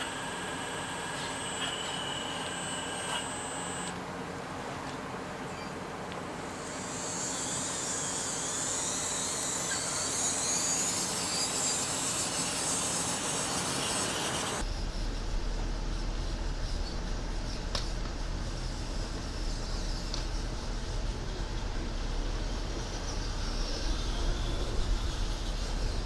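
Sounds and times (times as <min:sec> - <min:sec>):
small electric motors running: 0:00.0 - 0:04.0, 0:06.4 - 0:14.6.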